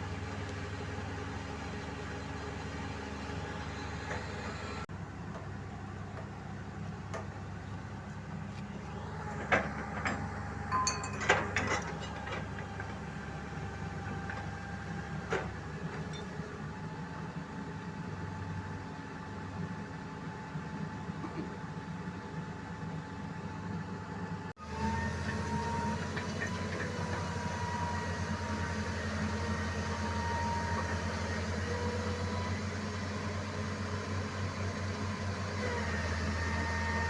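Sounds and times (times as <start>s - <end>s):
heavy diesel engine running: 0.0s - 37.0s
sharp metallic clanks: 10.7s - 12.2s.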